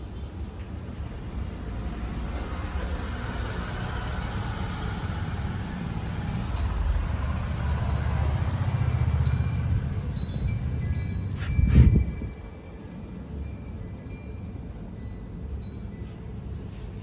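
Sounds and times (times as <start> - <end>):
outdoor background rumble: 0.0 - 17.0.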